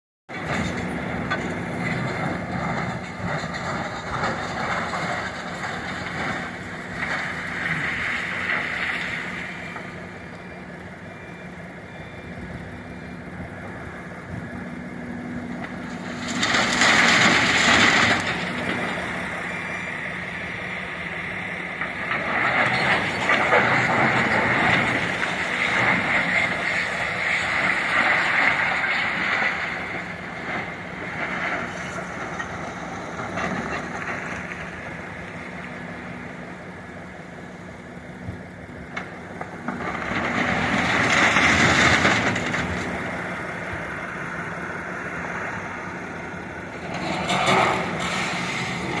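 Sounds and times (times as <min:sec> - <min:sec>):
excavator engine digging: 0:00.3 - 0:49.0
rock loading into truck: 0:15.7 - 0:19.8, 0:39.6 - 0:43.2.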